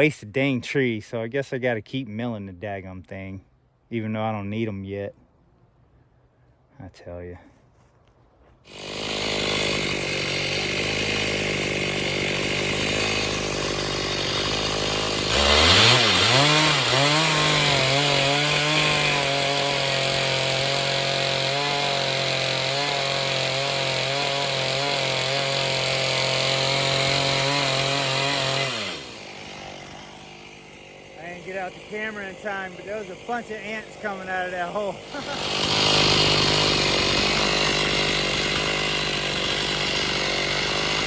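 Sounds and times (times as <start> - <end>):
chainsaw ripping log: 8.6 - 41.0.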